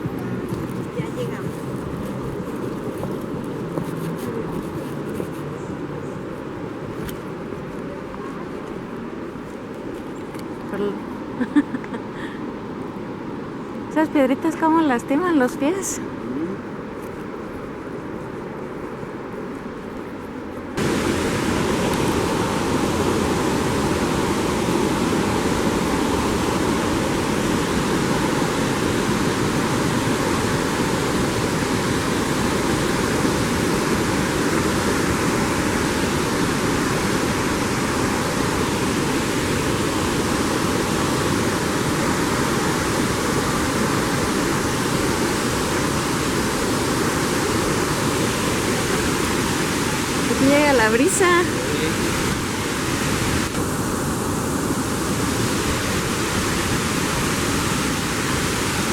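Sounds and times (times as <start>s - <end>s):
waterfall crashing: 20.8s - 58.9s.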